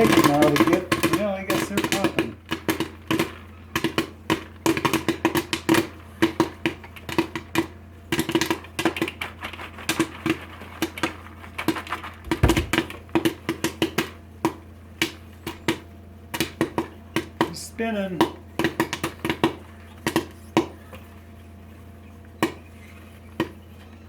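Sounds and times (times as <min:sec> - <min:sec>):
popcorn popping: 0:00.0 - 0:20.8
heavy thump: 0:12.3 - 0:13.0.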